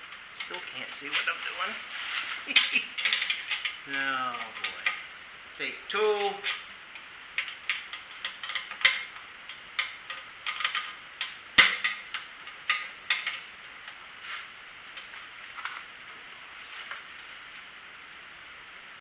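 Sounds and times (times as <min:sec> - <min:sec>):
small metal hardware clinking: 0:02.5 - 0:05.1, 0:06.2 - 0:14.0
sharp knocks: 0:10.6 - 0:13.4.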